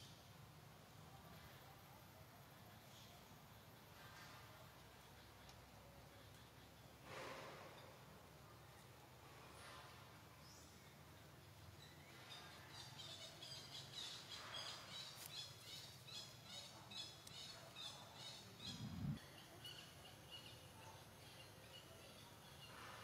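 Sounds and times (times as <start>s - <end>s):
small bird chirping: 10.4s - 23.0s.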